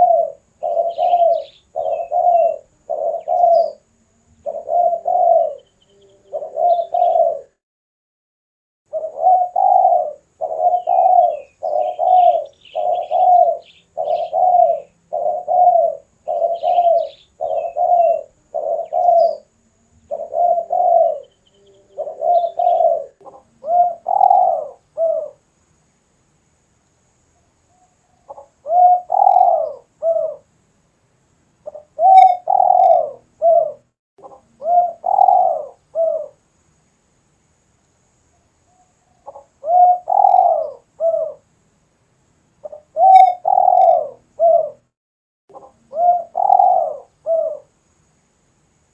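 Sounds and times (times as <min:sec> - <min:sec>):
dove cooing: 0:00.0 - 0:07.6, 0:08.9 - 0:25.4, 0:27.7 - 0:30.5, 0:31.6 - 0:36.4, 0:38.7 - 0:41.5, 0:42.6 - 0:44.9, 0:45.5 - 0:47.8
faint small birds chirping: 0:00.0 - 0:07.6, 0:08.9 - 0:48.9.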